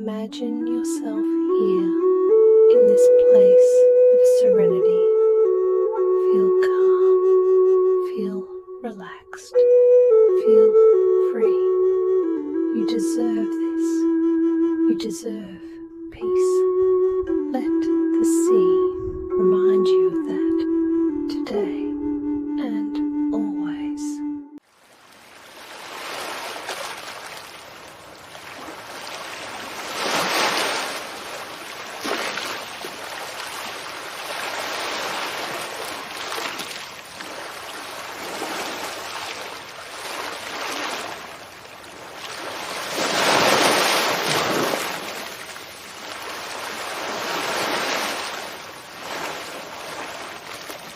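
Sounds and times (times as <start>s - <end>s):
ocean surf washing ashore: 24.7s - 50.9s.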